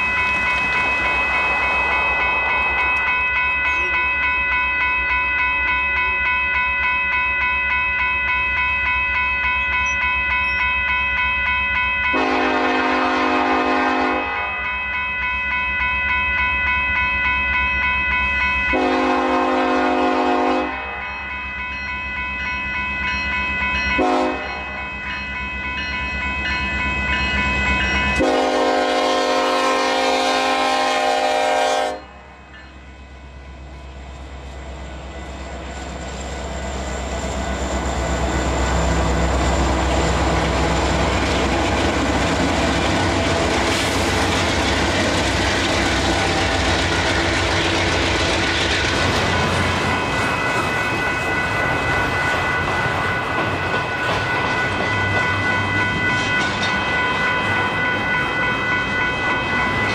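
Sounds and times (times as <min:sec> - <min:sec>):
crossing bell ringing: 0:00.0 - 0:59.9
freight train passing: 0:00.0 - 0:59.9
train horn blasts: 0:12.1 - 0:14.5, 0:18.7 - 0:21.0, 0:24.0 - 0:24.6, 0:28.2 - 0:32.2.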